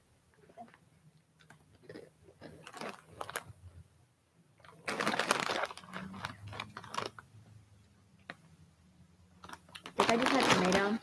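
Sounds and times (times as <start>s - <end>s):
chewing crisp chips: 1.4s - 3.5s.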